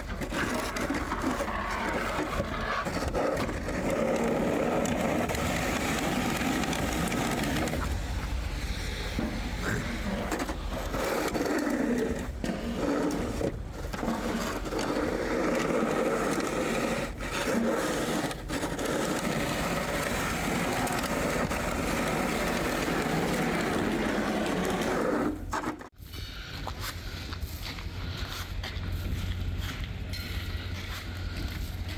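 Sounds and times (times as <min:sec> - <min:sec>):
snowplow truck engine: 0:00.0 - 0:25.5
plow scraping: 0:00.0 - 0:25.9.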